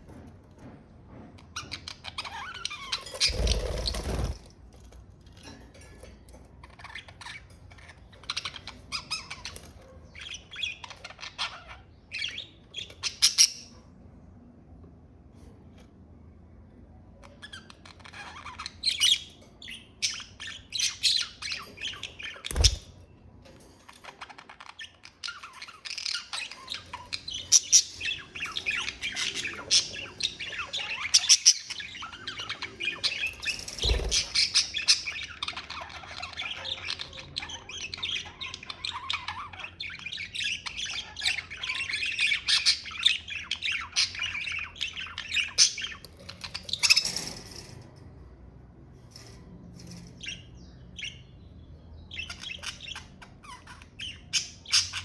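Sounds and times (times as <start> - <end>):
budgerigars chirping: 17.3 - 23.0, 24.8 - 47.4, 52.0 - 55.0.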